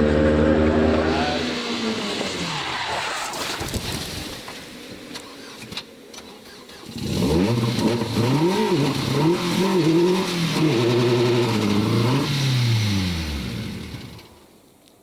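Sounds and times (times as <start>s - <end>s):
rally car engine revving: 0.0s - 3.7s, 6.4s - 14.4s.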